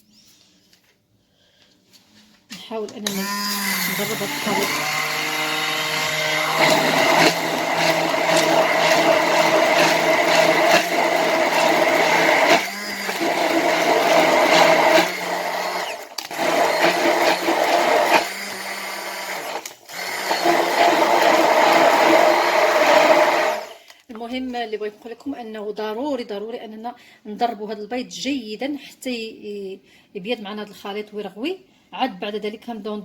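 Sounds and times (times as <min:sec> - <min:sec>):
electric hand mixer humming: 0:03.0 - 0:23.8.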